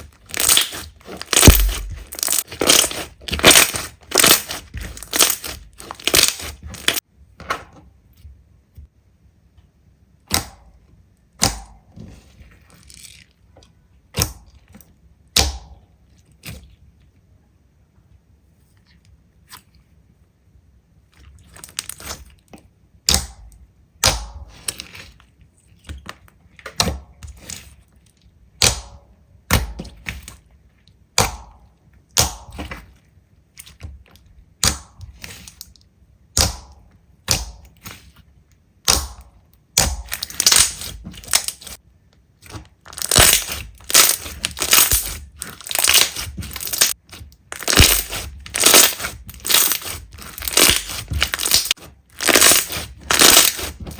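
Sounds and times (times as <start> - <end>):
slime squished by hand crackling: 0.0 - 7.0, 38.8 - 41.8, 42.4 - 53.9.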